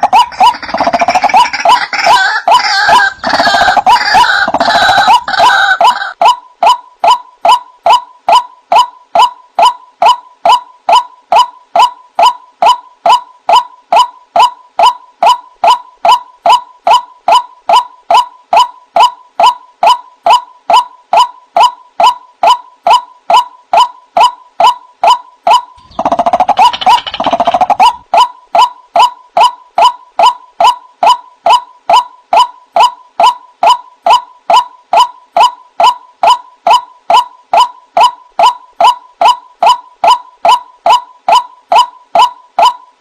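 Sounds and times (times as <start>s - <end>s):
waterhen calling: 0.0s - 6.8s, 25.5s - 28.3s.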